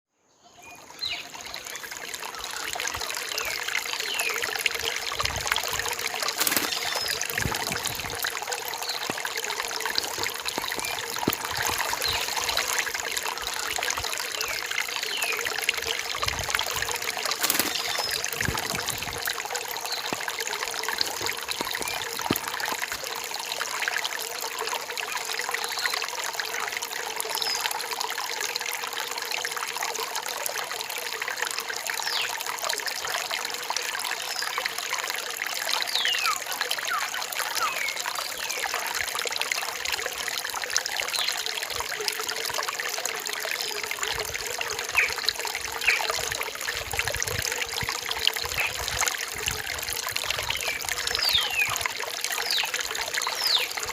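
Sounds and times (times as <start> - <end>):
stream trickling over rocks: 0.4 - 53.9.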